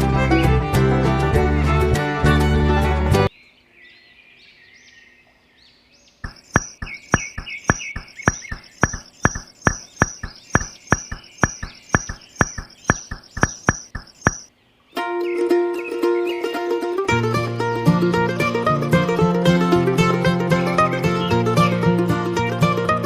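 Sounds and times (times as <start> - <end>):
plucked-string music: 0.0 - 3.3, 15.0 - 23.0
sharp ringing knocks: 6.2 - 14.5.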